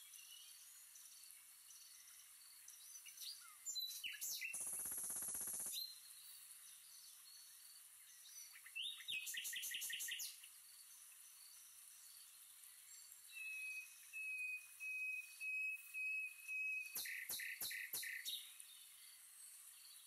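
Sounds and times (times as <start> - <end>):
birds chirping: 0.1 - 20.0.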